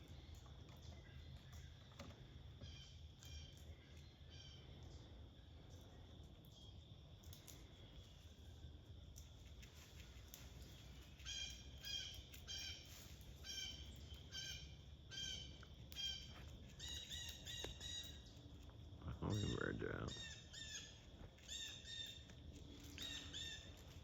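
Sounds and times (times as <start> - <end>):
bird calling: 19.1 - 22.3, 22.9 - 24.0.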